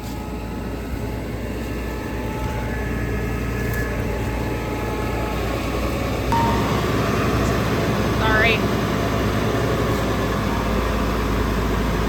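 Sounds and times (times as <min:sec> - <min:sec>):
steady low rumble: 0:00.0 - 0:11.9
faint high tones: 0:06.3 - 0:08.7.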